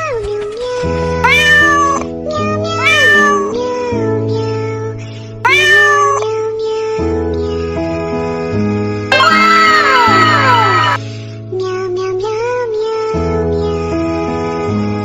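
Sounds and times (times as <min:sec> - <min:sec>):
cat meowing: 0:01.2 - 0:02.0, 0:02.7 - 0:03.7, 0:05.5 - 0:06.3, 0:09.1 - 0:11.0
background music: 0:09.1 - 0:11.2.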